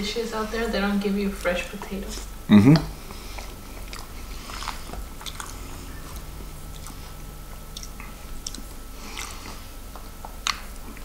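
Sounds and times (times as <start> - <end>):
man chewing: 2.2 - 11.0.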